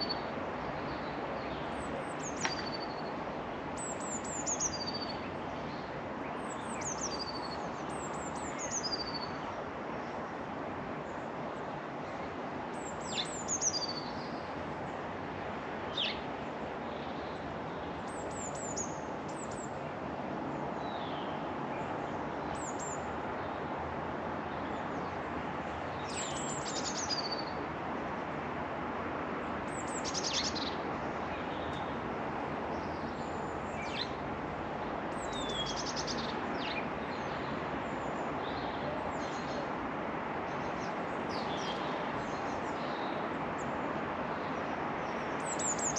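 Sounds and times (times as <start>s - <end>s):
small birds calling: 3.8s - 9.4s, 25.8s - 27.6s, 29.7s - 31.9s, 35.1s - 39.7s, 40.5s - 45.9s.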